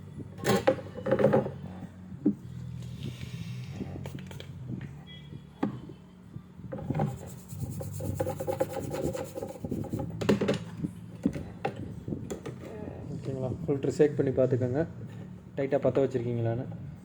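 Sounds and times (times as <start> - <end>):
scraping on a circuit board: 6.8 - 10.2.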